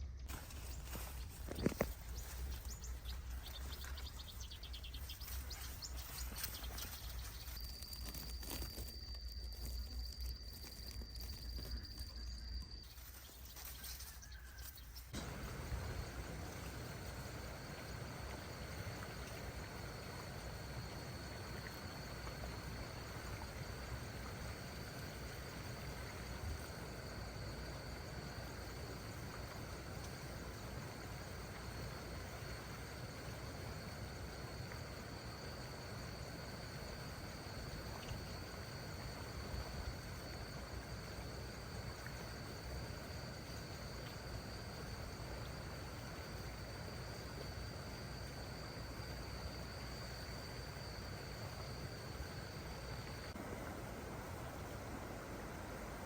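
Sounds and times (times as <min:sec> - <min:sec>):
high-pitched insect drone: 0:04.7 - 0:29.7.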